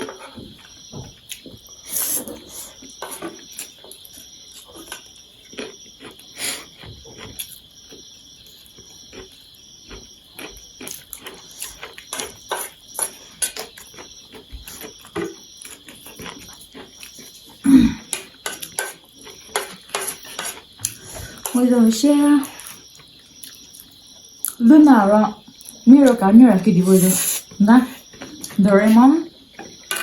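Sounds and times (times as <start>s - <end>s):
chewing and slurping noodles: 1.3s - 21.5s.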